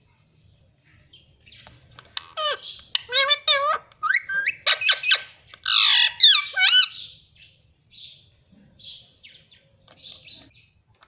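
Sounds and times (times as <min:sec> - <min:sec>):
parrot chirping: 0:01.5 - 0:07.2
parrot squawking: 0:02.1 - 0:07.1.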